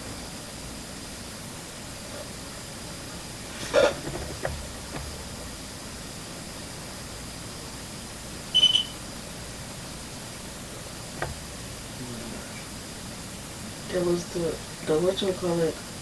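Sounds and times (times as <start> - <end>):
steady hiss: 0.0 - 16.0
short high electronic beep: 8.5 - 9.0.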